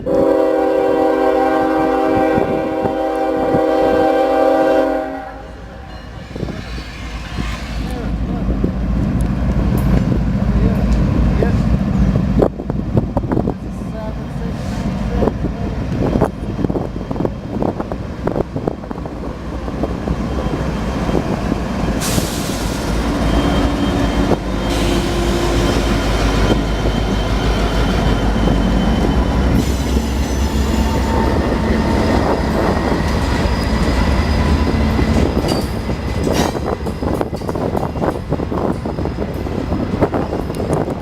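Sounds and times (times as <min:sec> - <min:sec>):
train rumbling past: 0:00.0 - 0:41.0
train wheels squealing: 0:05.8 - 0:08.1, 0:20.0 - 0:40.9.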